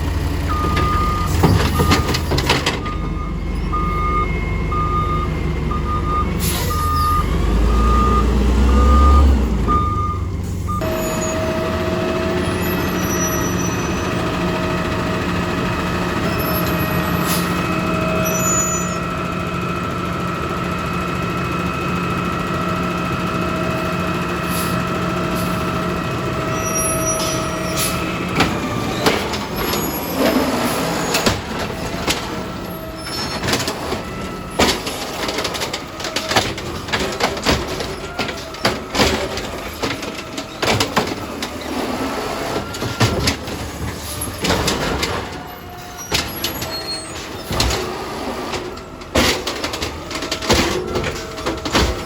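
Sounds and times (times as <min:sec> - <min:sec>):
diesel engine rumble: 0:00.0 - 0:52.0
reversing alarm beeping: 0:00.4 - 0:19.4, 0:21.6 - 0:41.3.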